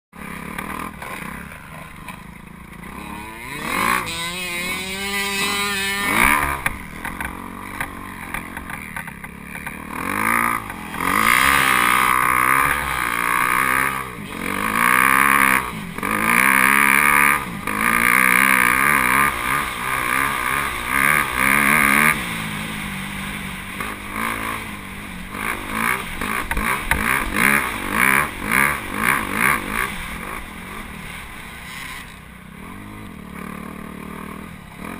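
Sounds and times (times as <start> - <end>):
dirt bike engine revving: 0.2 - 34.9.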